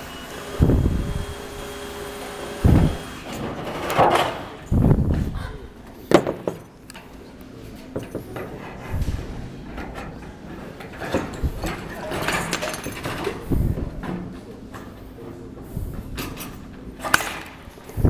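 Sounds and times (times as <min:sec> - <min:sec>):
construction knocks and thumps: 0:02.5 - 0:05.4, 0:06.1 - 0:06.7, 0:07.8 - 0:14.5.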